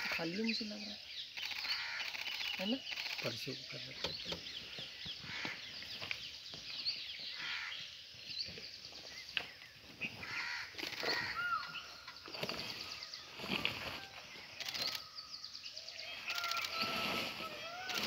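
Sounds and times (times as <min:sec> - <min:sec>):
wild birds chirping: 0:00.0 - 0:18.0
sharp clicks: 0:01.3 - 0:03.4, 0:10.8 - 0:11.2, 0:14.5 - 0:15.1, 0:16.2 - 0:16.8.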